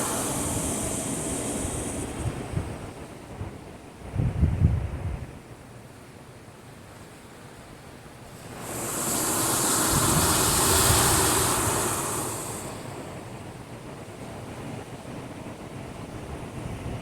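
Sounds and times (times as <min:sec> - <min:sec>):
rushing hiss of spray: 0:00.0 - 0:03.4, 0:08.3 - 0:13.9
wave breaking against breakwater: 0:08.3 - 0:13.7.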